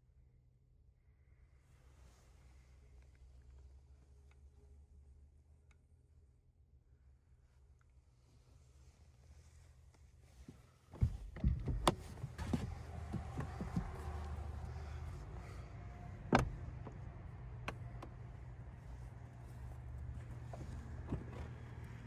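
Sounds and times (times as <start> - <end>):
vehicle cabin rumble: 9.3 - 22.0.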